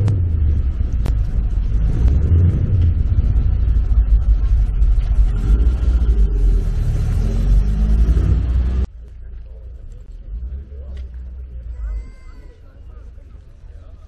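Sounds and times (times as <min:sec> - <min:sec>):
car engine driving past: 0:00.0 - 0:08.9.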